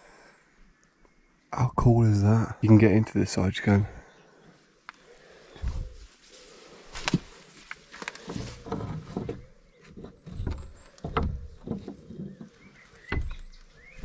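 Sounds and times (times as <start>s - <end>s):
footsteps on rough ground: 5.5s - 14.0s.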